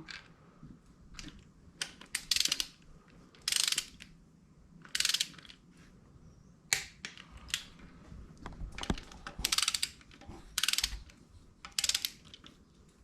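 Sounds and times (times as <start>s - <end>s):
ratchet wrench clicking: 1.8s - 2.8s, 3.4s - 4.0s, 4.9s - 5.4s, 9.4s - 10.0s, 10.6s - 11.1s, 11.7s - 12.4s.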